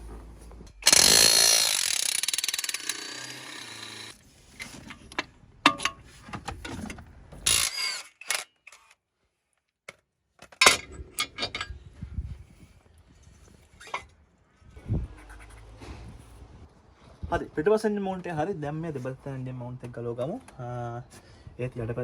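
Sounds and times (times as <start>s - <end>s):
impact wrench rattling: 0.7s - 4.2s
metal tools clicking and knocking: 5.1s - 8.4s.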